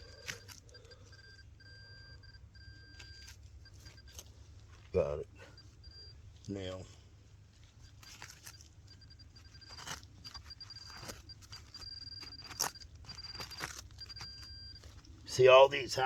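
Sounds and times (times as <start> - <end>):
metal detector electronic tone: 0.0 - 4.3, 7.9 - 16.0
soil being dug and scraped: 7.8 - 16.0.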